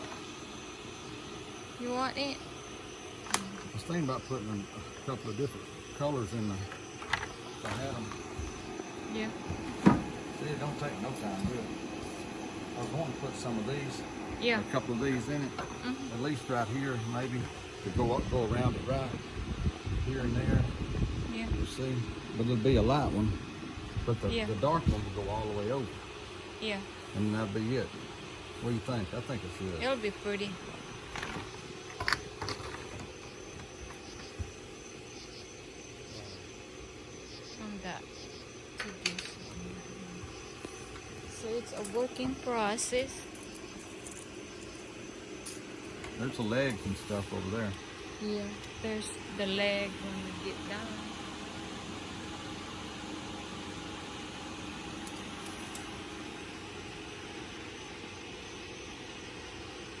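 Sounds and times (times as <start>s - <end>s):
background hum and hiss: 0.0s - 60.0s.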